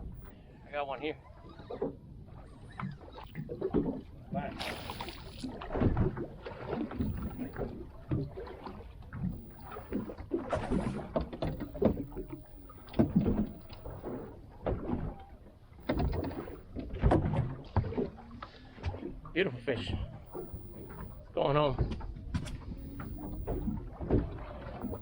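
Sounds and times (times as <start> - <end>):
knocks and bumps on boat: 2.7 - 4.8, 5.4 - 25.0.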